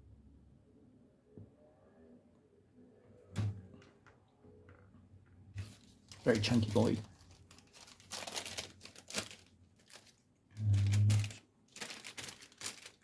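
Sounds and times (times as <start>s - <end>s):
plastic bag crinkling: 5.6s - 13.0s.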